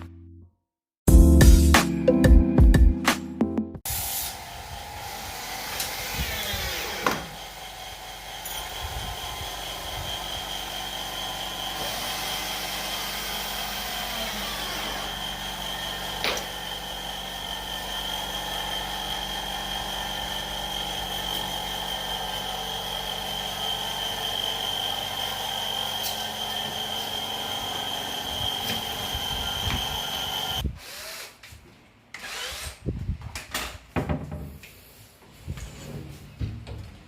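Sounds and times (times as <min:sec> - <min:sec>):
power tool whining: 0:03.9 - 0:31.4.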